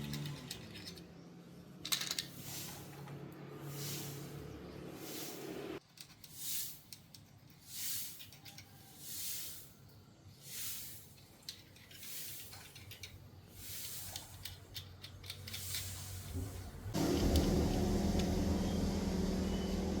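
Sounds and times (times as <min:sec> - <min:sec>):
short hissing strokes: 0:02.3 - 0:06.9, 0:07.6 - 0:11.2, 0:13.5 - 0:14.4, 0:15.6 - 0:17.0.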